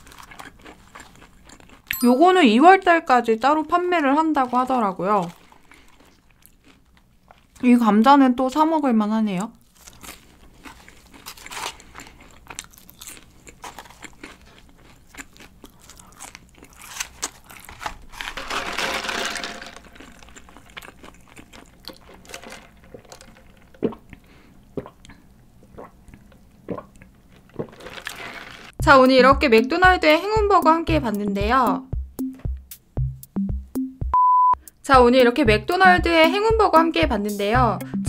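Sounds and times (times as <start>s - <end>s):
crunching and chewing fries: 0.0s - 1.9s, 3.5s - 7.8s, 8.7s - 28.8s.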